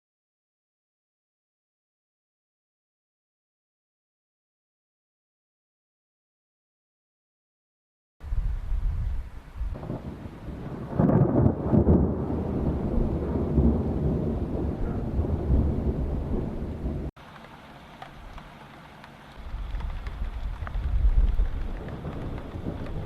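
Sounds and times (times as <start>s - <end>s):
thunder rumbling: 8.2s - 17.1s, 18.0s - 23.0s
steady rain: 8.2s - 23.0s.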